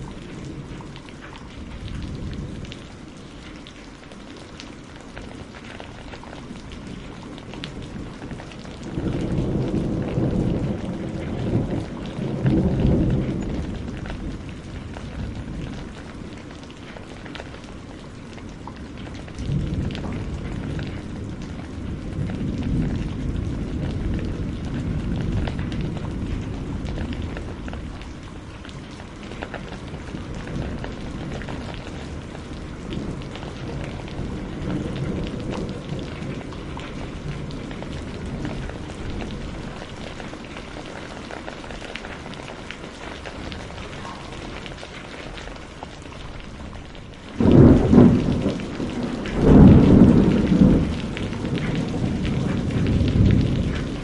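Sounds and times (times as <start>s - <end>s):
low rolling thunder: 0.0s - 3.7s, 5.2s - 54.0s
steady rain: 0.0s - 54.0s
loud thunderclap: 8.8s - 14.3s, 47.4s - 54.0s.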